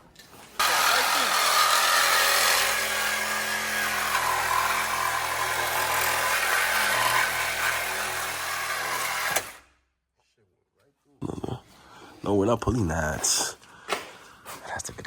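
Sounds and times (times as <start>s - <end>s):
power saw cutting metal pipe: 0.6s - 9.6s.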